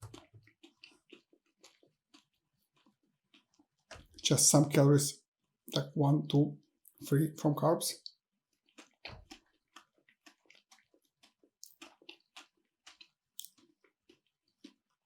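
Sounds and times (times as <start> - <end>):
wet chewing mouth clicks: 0.0 - 4.2, 8.0 - 15.0.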